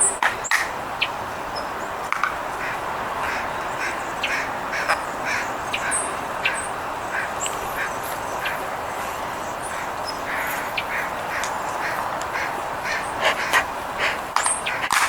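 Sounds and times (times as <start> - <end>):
steady background hiss: 0.0 - 15.0
crows cawing: 2.1 - 15.0.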